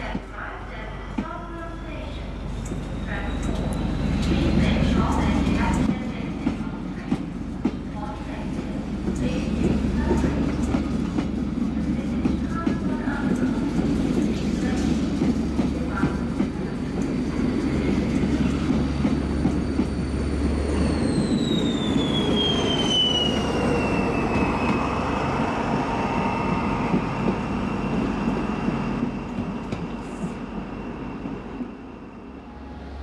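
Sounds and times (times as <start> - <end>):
train wheels rumbling on rails: 0.0 - 33.0
locomotive high whine: 1.6 - 6.2, 15.8 - 33.0.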